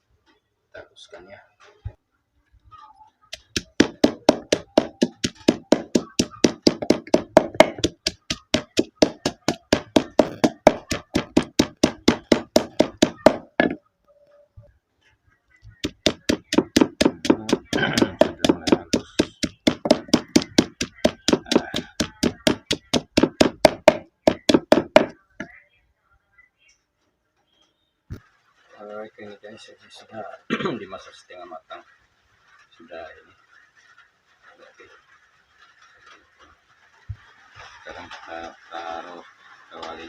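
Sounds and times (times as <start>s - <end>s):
dull pounding strikes: 3.3s - 13.8s, 15.8s - 25.2s.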